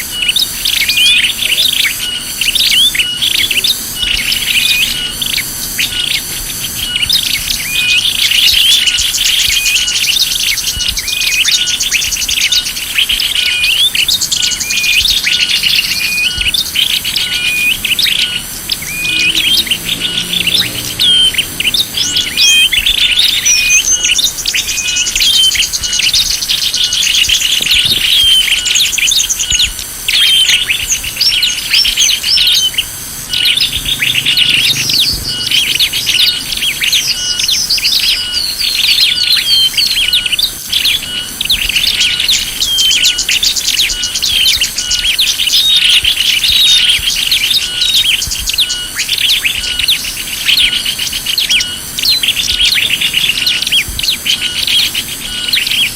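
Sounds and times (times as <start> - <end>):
small birds chirping and trilling: 0.0 - 55.9.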